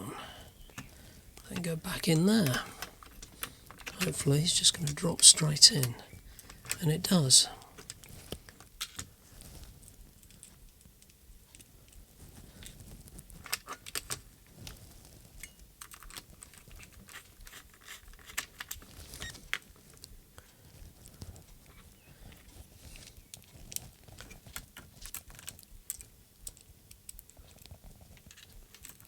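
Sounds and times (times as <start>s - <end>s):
plastic parts clicking and tapping: 2.4s - 5.0s, 5.8s - 6.8s, 7.6s - 9.1s, 13.4s - 14.3s, 15.4s - 19.6s, 23.2s - 29.0s.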